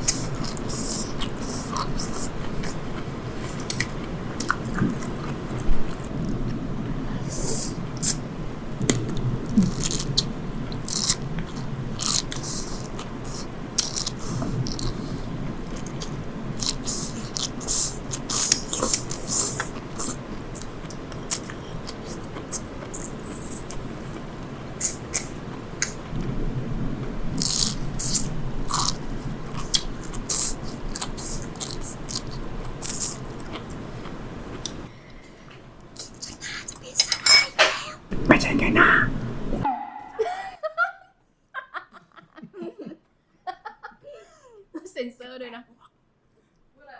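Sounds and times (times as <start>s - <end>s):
wet chewing and biting: 0.0s - 6.6s, 8.8s - 26.1s, 27.3s - 34.9s.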